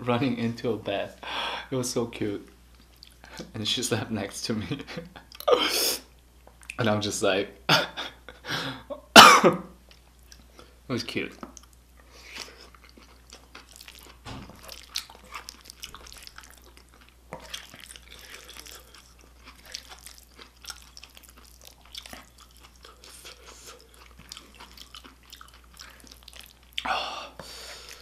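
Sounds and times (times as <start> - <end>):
chewing and wet mouth smacking: 2.7 - 3.5, 9.9 - 10.7, 11.3 - 26.9.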